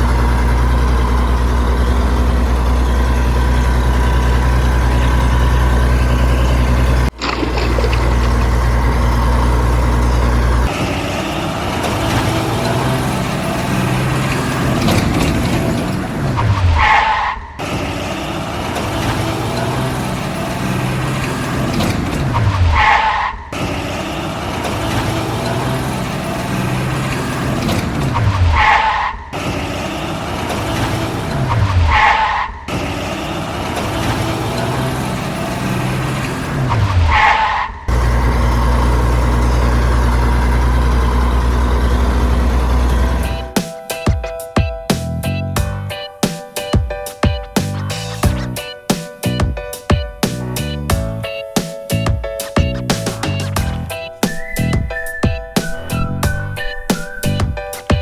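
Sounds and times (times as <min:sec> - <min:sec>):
heavy truck engine drone: 0:00.0 - 0:44.0, 0:44.9 - 0:46.2, 0:47.6 - 0:49.6, 0:50.3 - 0:58.0
high squeal: 0:30.5 - 0:33.2, 0:53.4 - 0:58.0.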